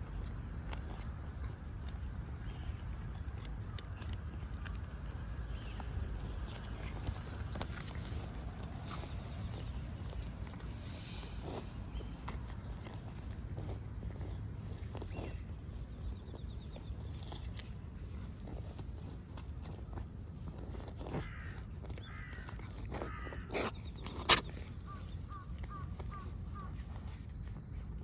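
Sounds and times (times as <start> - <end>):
low outdoor rumble: 0.0 - 23.9
crow cawing: 22.1 - 22.5.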